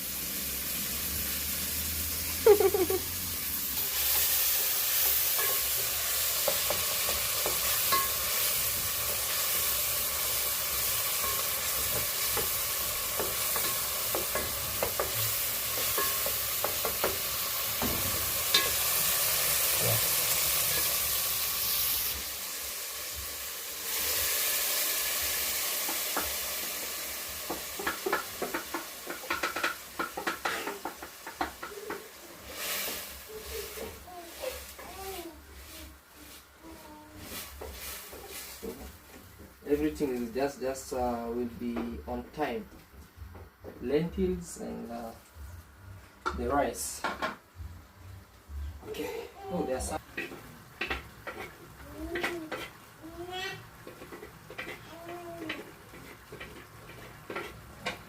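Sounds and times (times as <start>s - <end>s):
food sizzling in oil: 0.0s - 42.6s, 48.9s - 58.0s
spoon stirring against pot: 4.0s - 20.0s, 27.5s - 36.4s, 50.0s - 53.0s, 53.7s - 58.0s.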